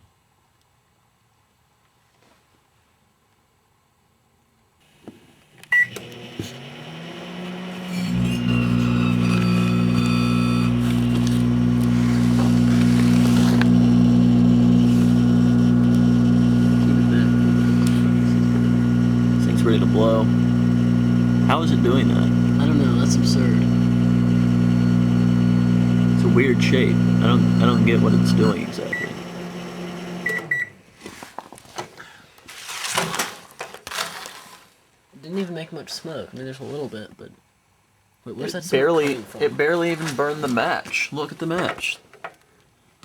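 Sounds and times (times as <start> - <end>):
microwave oven humming: 4.8 - 30.8.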